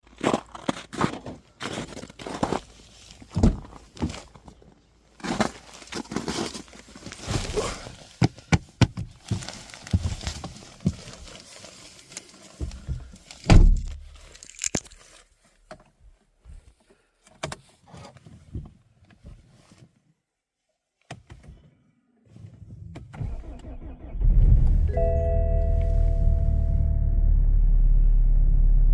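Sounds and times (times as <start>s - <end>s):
diesel engine starting: 22.6s - 28.9s.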